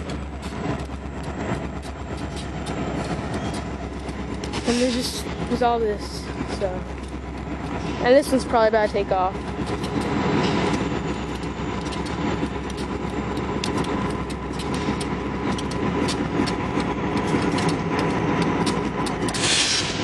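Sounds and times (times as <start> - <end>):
diesel locomotive engine running: 0.0 - 20.0
thin steady whine: 0.0 - 20.0
sharp clicks: 6.8 - 20.0.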